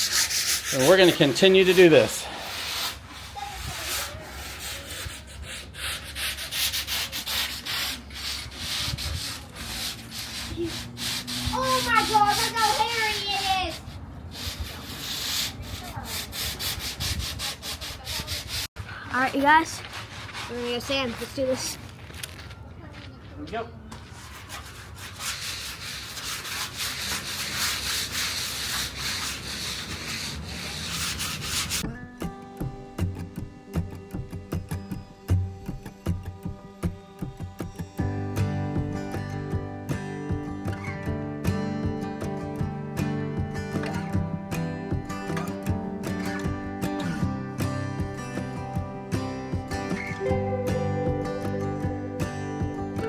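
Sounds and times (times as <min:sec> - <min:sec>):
sandpaper scrubbing boat hull: 0:00.0 - 0:21.8, 0:24.0 - 0:31.8
guitar music: 0:31.8 - 0:53.0.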